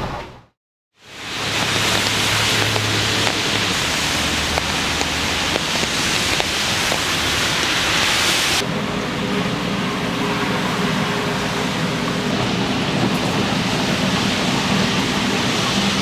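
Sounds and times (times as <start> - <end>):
chicken deep-frying in oil: 1.0 - 8.6, 13.5 - 16.0.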